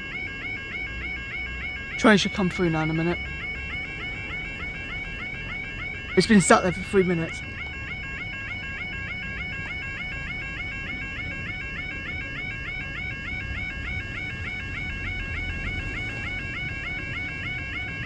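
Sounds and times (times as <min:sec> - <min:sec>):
two-tone warbling alarm: 0:00.0 - 0:18.0.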